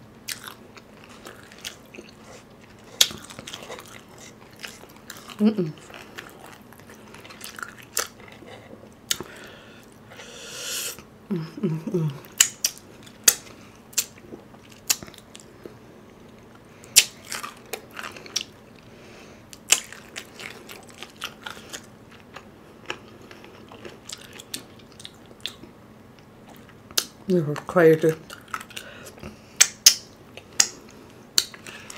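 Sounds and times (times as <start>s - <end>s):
chewing fried chicken: 0.2s - 10.1s, 12.0s - 31.9s
person humming briefly: 10.6s - 12.2s
wet mouth clicks and smacks: 31.4s - 31.7s.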